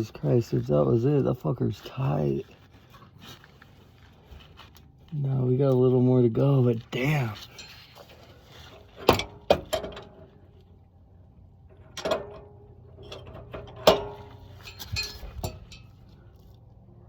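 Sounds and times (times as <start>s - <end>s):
metal tools clanking on engine: 7.0s - 10.5s, 11.7s - 16.3s.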